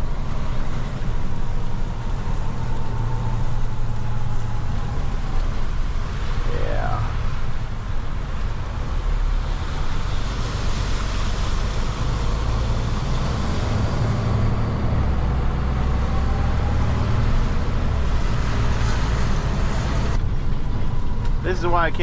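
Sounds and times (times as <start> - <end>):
road noise: 0.0 - 22.0
truck engine rumble: 0.0 - 22.0.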